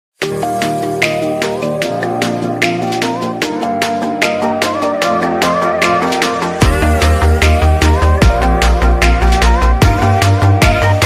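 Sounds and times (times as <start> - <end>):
electronic music with drum beat: 0.2 - 11.0
deep pulsing bass: 6.6 - 11.0.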